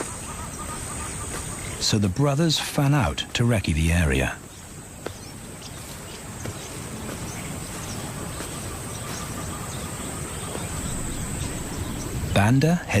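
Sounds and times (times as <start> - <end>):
high-pitched insect drone: 0.0 - 1.8.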